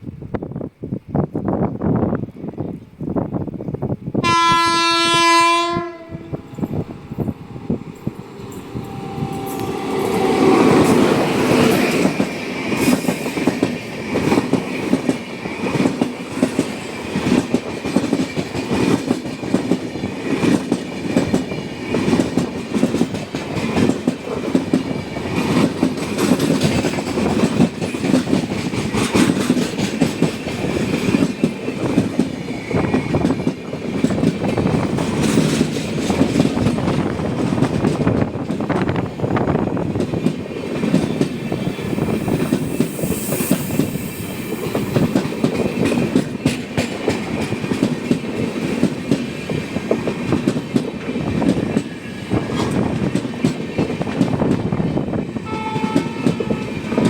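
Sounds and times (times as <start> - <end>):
train wheels clattering over rail joints: 6.6 - 55.2.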